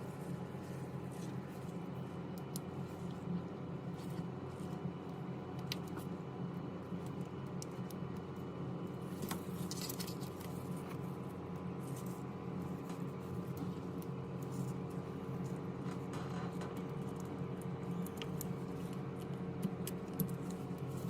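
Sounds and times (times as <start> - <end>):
steady low hum: 0.0 - 21.0
faint small clicks and taps: 5.5 - 6.1, 16.6 - 20.9.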